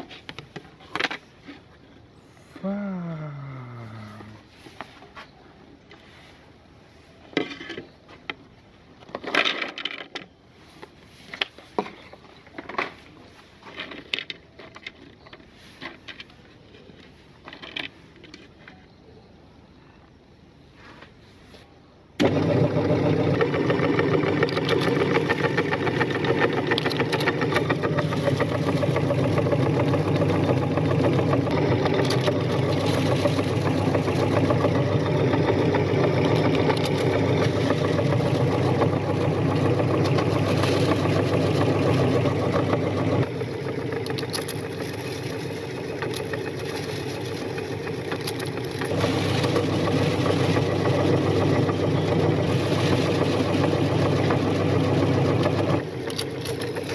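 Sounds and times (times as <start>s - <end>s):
electric meat grinder grinding: 22.2s - 56.9s.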